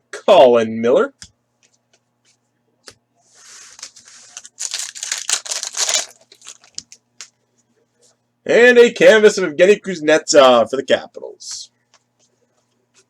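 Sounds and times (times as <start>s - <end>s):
wrapper crinkling: 3.7s - 7.1s
foil wrapper ripping: 3.8s - 7.0s.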